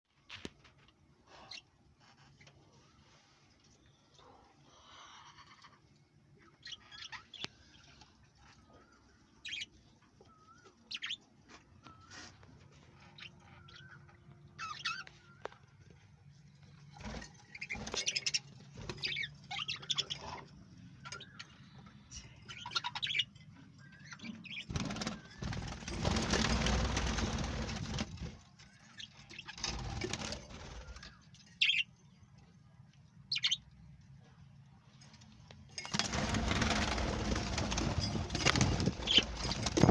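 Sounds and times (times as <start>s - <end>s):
wings flapping: 24.7s - 28.5s, 29.5s - 31.2s, 35.8s - 39.9s.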